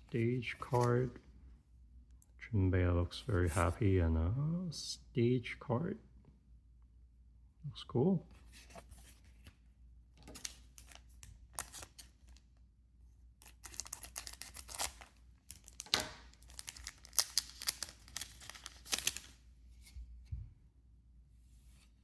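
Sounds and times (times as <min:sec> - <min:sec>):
foil pack tearing and crinkling: 0:13.5 - 0:19.3.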